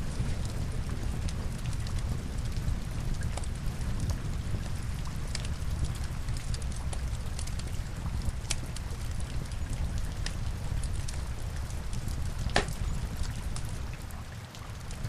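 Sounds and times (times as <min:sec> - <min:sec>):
fire snapping and popping: 0:00.0 - 0:15.0
rain pattering: 0:00.0 - 0:15.0
wood fire crackling: 0:00.0 - 0:15.0.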